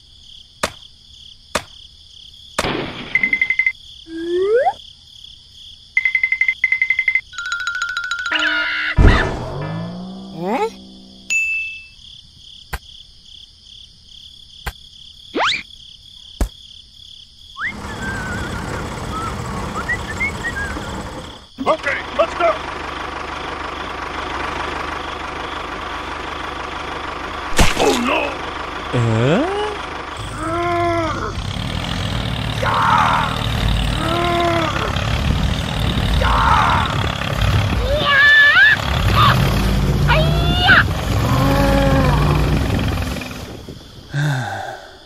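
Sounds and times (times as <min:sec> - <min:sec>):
cricket-like chirring: 0:00.0 - 0:22.6
high-pitched voice-like cries: 0:04.1 - 0:04.8, 0:29.1 - 0:31.4, 0:34.0 - 0:35.0
engine-like running noise: 0:09.0 - 0:11.3, 0:17.6 - 0:44.2
quick rising whistle: 0:17.6 - 0:20.9.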